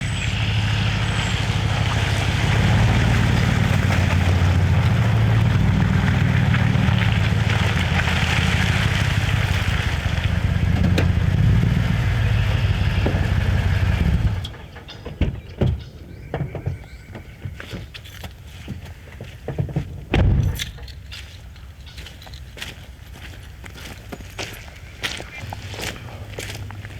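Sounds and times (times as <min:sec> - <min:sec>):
engine running: 0:00.0 - 0:15.8, 0:24.5 - 0:26.9.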